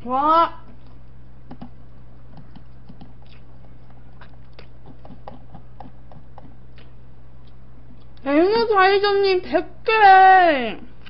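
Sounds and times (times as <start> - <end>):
low electrical hum: 0.0 - 11.0
person chewing food: 0.8 - 8.2.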